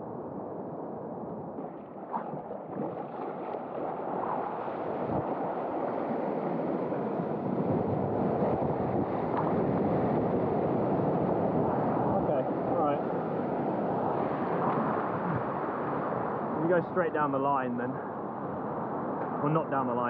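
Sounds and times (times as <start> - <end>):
rushing water and surf: 0.0 - 20.0
small water splashes: 1.6 - 7.3.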